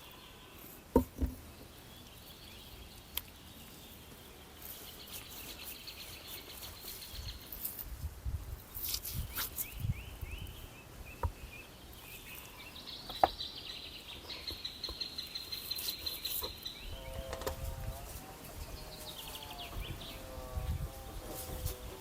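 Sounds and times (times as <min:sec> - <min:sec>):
birds chirping and trilling: 0:00.0 - 0:07.8, 0:08.8 - 0:22.0.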